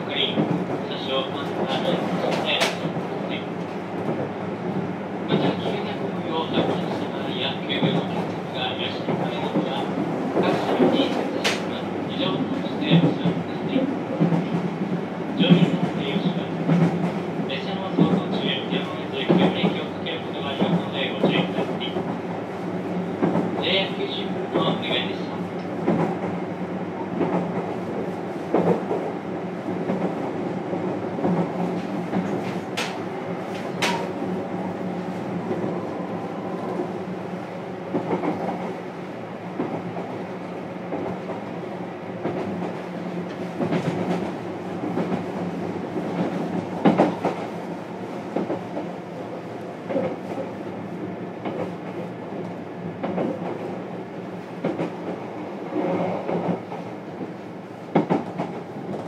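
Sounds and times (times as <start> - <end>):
train wheels and motors rumbling: 0.0 - 59.0
wheel clacks over rail joints: 33.6 - 34.2.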